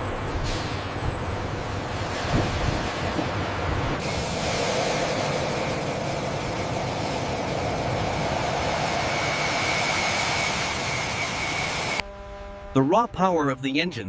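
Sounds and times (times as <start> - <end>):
jet engine roaring: 1.4 - 12.0
faint high whine: 5.7 - 13.5.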